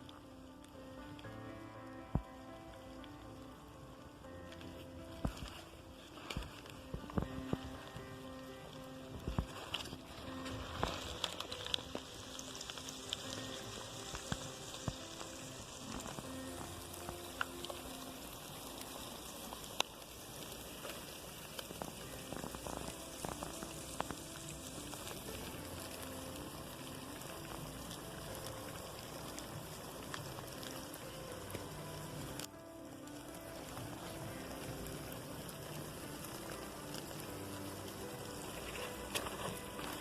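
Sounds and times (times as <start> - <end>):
crackling sizzling noise: 0.0 - 40.0.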